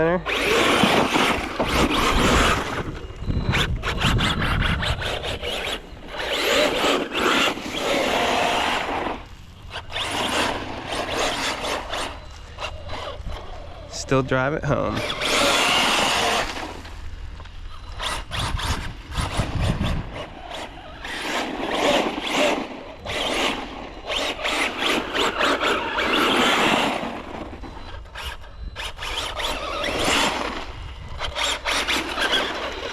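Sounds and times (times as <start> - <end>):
rc car motor whining: 0.0 - 32.9
tyres scrabbling over ground: 0.3 - 13.9.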